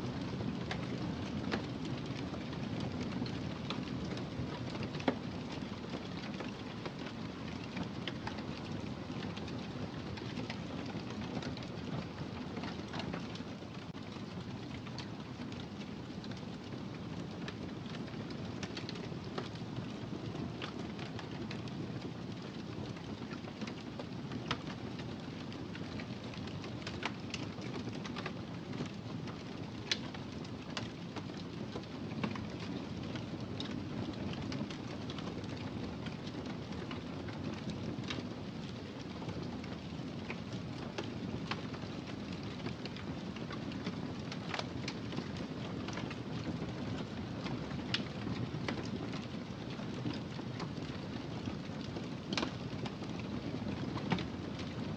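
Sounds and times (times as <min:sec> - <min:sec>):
wood fire crackling: 0:00.2 - 0:54.9.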